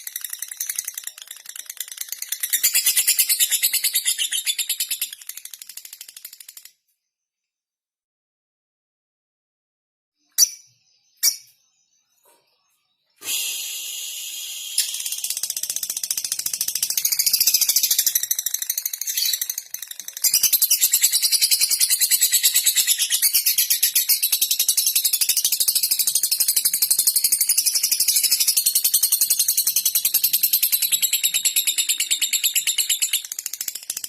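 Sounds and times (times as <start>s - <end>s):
lovebird chattering song: 14.6s - 34.0s.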